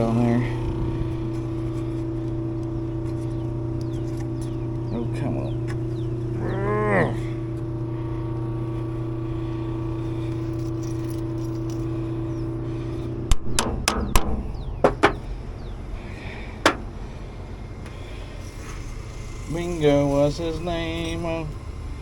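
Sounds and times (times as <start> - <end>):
exhaust fan motor hum: 0.0 - 22.0
sharp metallic clicks and knocks: 13.3 - 15.3, 16.6 - 16.9.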